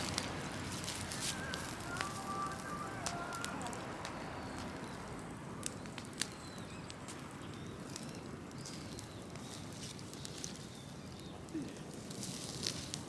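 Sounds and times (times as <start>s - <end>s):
sharp pops from fire: 0.0s - 5.0s, 12.0s - 13.0s
wood fire crackling: 0.0s - 13.0s.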